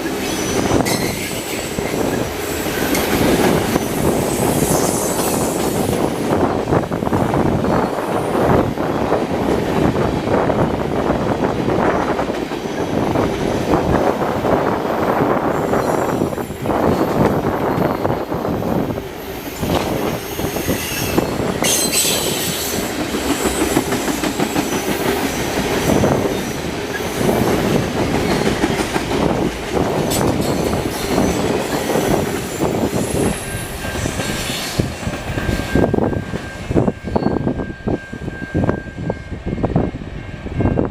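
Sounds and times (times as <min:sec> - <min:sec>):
train rumble: 0:00.0 - 0:40.9
high wheel squeal: 0:04.1 - 0:06.8, 0:19.2 - 0:24.9.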